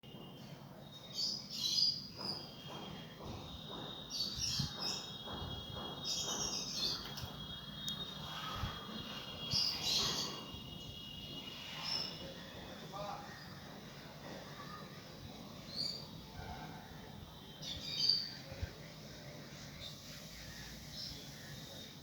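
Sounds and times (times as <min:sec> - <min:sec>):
bird chirping: 0:00.1 - 0:13.7.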